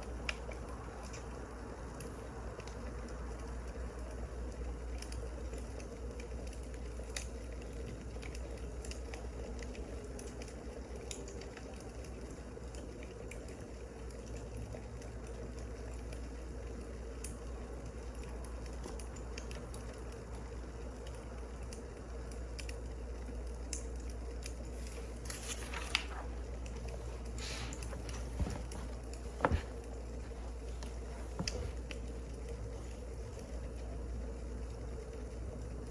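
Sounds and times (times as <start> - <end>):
wood fire crackling: 0.0 - 35.9
clicks and rustles: 24.5 - 33.6.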